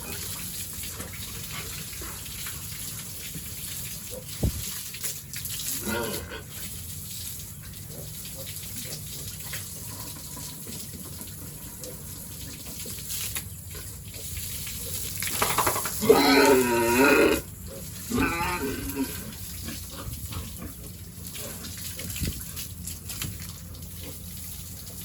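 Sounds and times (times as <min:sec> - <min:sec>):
pig squealing: 0:16.0 - 0:19.4.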